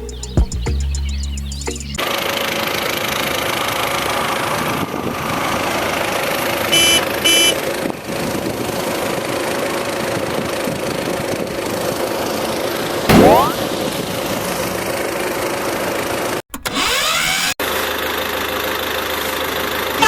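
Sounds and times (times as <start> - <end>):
short horn toots: 6.7 - 7.6.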